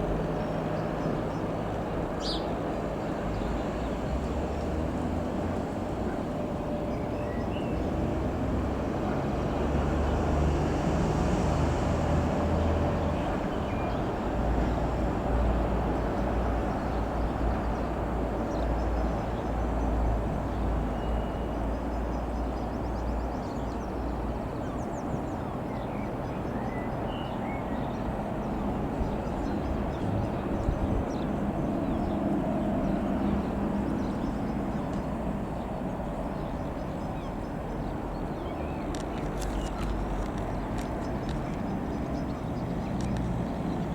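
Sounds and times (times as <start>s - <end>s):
light aircraft engine droning: 0.0s - 43.9s
wind rumbling on microphone: 26.3s - 43.9s.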